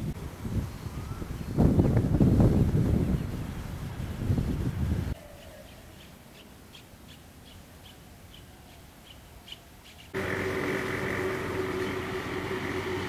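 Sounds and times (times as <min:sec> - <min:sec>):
steady mechanical drone: 0:10.2 - 0:13.0.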